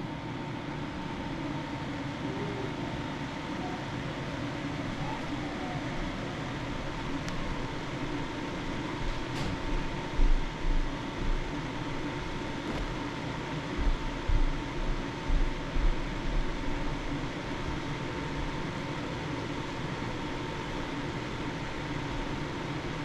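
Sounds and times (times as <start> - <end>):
fan-like hum: 0.0 - 23.0
faint high tone: 2.2 - 4.0, 5.0 - 6.5.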